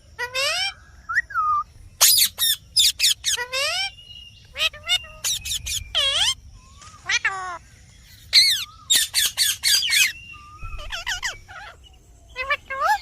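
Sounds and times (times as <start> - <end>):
parrot squawking: 2.0 - 6.4, 8.3 - 13.0.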